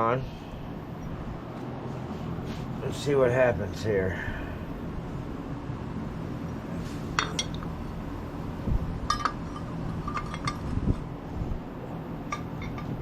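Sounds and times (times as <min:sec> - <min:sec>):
shop fan humming: 0:00.0 - 0:13.0
light metallic clinks and taps: 0:09.1 - 0:10.6.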